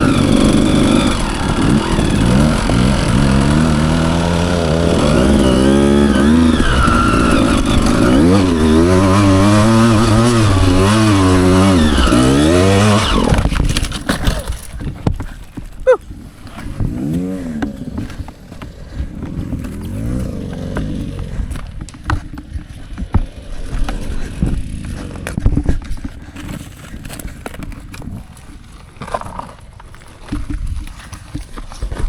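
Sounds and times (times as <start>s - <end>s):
dirt bike engine revving: 0.0s - 14.6s, 15.9s - 25.8s.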